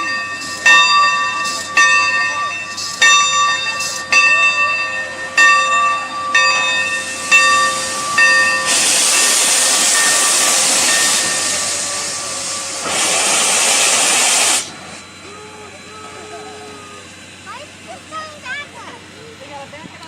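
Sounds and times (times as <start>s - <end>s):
steam locomotive bell ringing: 0.0s - 18.4s
loud hiss of steam: 6.2s - 17.9s.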